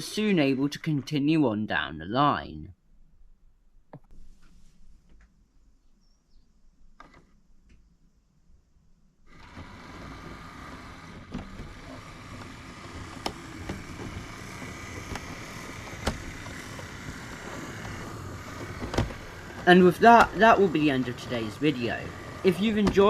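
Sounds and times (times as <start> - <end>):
model train motor hum: 0.0 - 1.0, 9.3 - 23.0.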